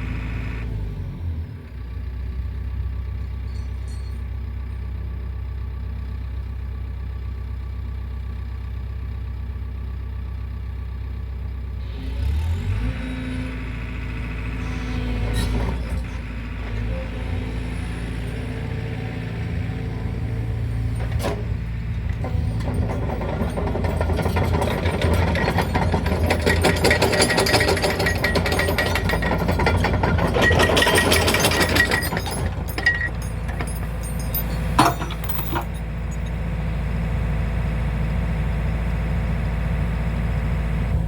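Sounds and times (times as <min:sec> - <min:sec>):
excavator diesel engine running: 0:00.0 - 0:41.0
sharp metal clanks: 0:21.0 - 0:36.4.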